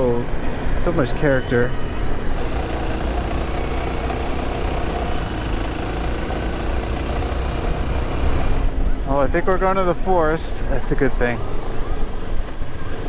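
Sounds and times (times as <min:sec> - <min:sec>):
motorcycle engine running: 0:02.0 - 0:08.8.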